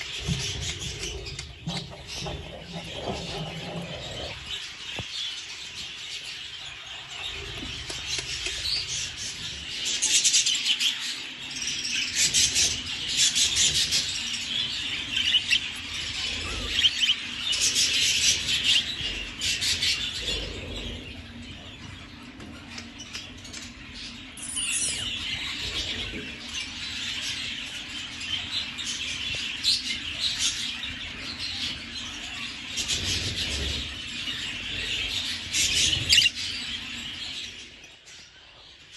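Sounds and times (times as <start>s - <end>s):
budgerigars chattering: 12.0s - 21.7s, 28.3s - 37.6s.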